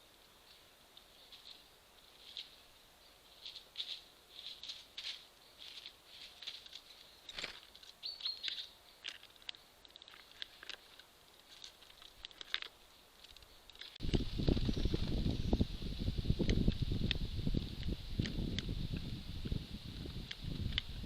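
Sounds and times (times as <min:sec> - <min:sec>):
bird chirp: 0:00.0 - 0:04.4, 0:05.2 - 0:11.0
squirrel scratching and tapping: 0:16.4 - 0:21.0.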